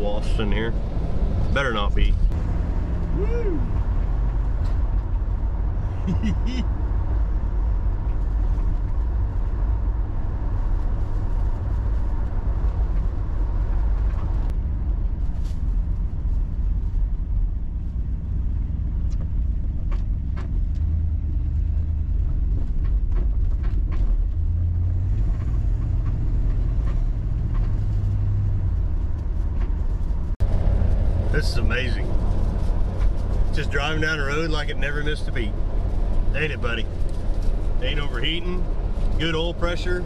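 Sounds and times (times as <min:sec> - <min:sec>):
car engine drone: 0:00.0 - 0:40.0
road noise: 0:00.0 - 0:40.0
car clicks and rattles: 0:22.0 - 0:30.2.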